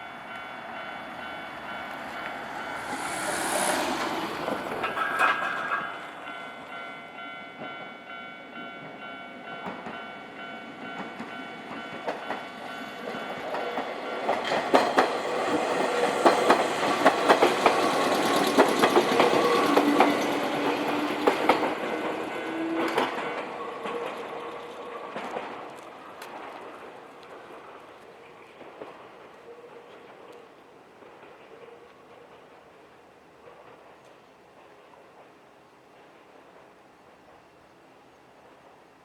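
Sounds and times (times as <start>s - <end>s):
electric train passing: 0.0s - 38.8s
wheels clacking over rail joints: 0.3s - 6.8s, 10.8s - 32.7s.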